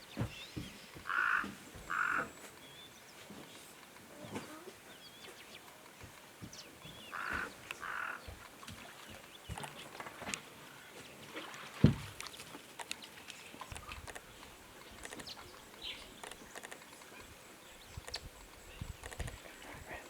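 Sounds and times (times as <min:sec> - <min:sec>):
scattered clicks: 0:13.7 - 0:14.3, 0:14.9 - 0:17.1, 0:19.0 - 0:19.4.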